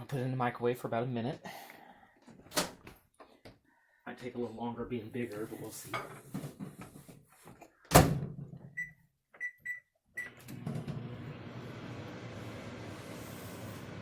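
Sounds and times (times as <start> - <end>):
microwave humming: 10.2 - 14.0.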